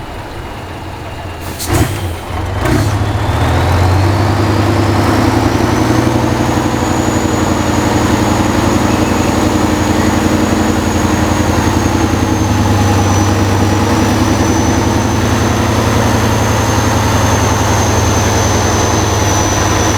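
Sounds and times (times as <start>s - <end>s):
diesel truck engine running: 0.0s - 19.9s
thin high whistle: 4.7s - 19.9s.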